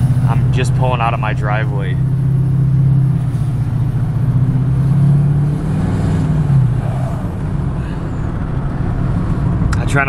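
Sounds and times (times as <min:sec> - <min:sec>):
diesel engine exhaust drone: 0:00.0 - 0:10.0.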